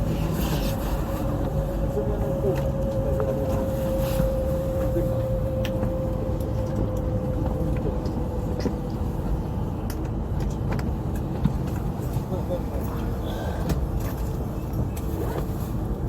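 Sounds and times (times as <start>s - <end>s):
train cabin low rumble: 0.0s - 16.0s.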